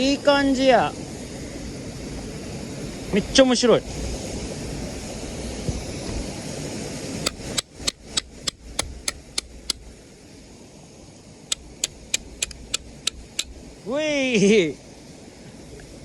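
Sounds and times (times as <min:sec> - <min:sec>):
wooden baton tapping knife: 0:07.3 - 0:09.8, 0:11.5 - 0:13.5.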